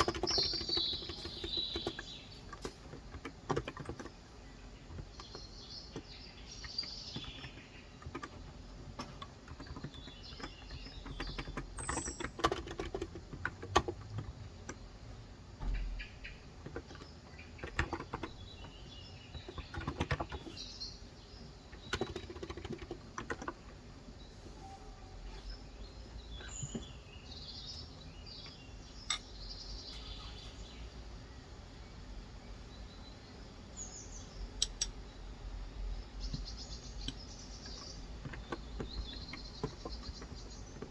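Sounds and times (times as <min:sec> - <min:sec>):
typing on keyboard: 0:00.0 - 0:04.2, 0:06.6 - 0:14.8, 0:16.6 - 0:18.6, 0:19.4 - 0:20.6, 0:21.8 - 0:23.6
birds chirping: 0:00.0 - 0:40.9.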